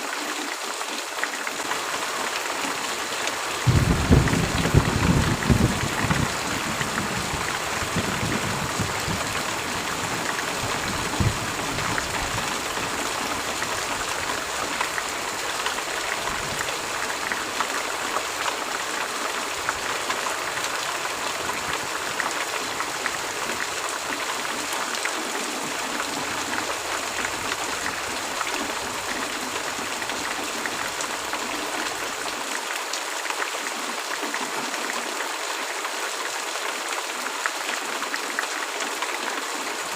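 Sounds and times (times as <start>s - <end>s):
heavy rain hissing: 1.6s - 32.6s
thunder rumbling: 3.5s - 14.6s.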